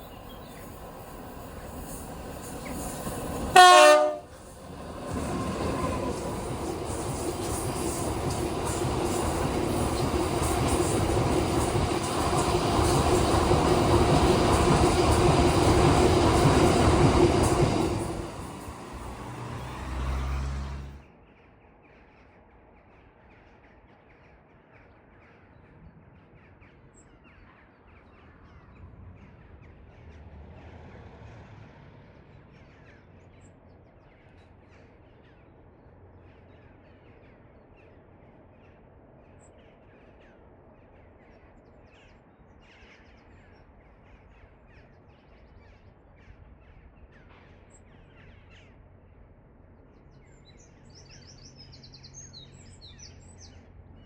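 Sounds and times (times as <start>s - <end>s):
train passing: 0.0s - 21.0s.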